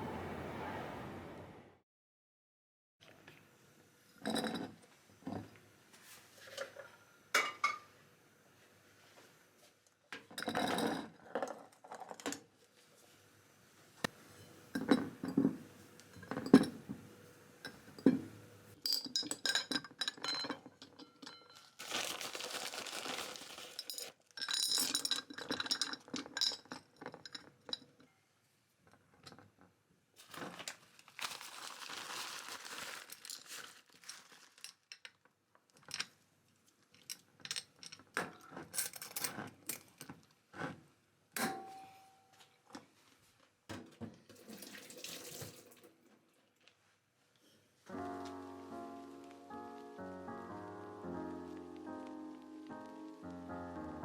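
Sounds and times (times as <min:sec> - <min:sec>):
glass and dishes clinking: 0:07.4 - 0:07.9, 0:14.4 - 0:17.0, 0:17.6 - 0:21.8, 0:41.4 - 0:42.4
packaging crinkling: 0:21.6 - 0:24.3, 0:30.2 - 0:34.9.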